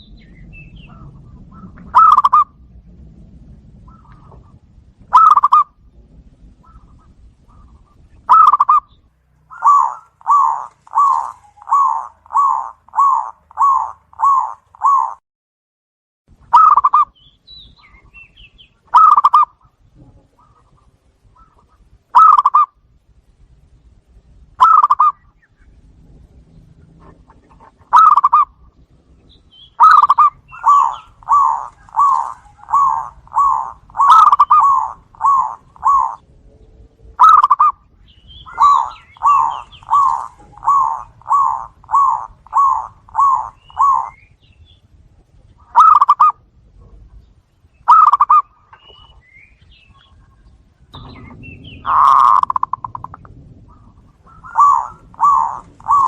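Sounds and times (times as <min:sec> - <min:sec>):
dove cooing: 0:00.0 - 0:02.7, 0:03.8 - 0:05.8, 0:06.5 - 0:15.2, 0:16.5 - 0:17.2, 0:18.9 - 0:22.8, 0:24.6 - 0:25.2, 0:26.8 - 0:28.7, 0:29.6 - 0:36.3, 0:37.2 - 0:44.3, 0:45.4 - 0:47.2, 0:47.8 - 0:49.2, 0:49.9 - 0:56.0.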